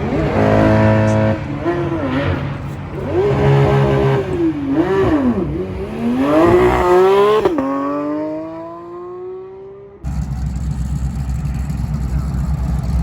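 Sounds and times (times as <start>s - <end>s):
car engine revving: 0.0s - 13.0s
low engine rumble: 10.0s - 13.0s.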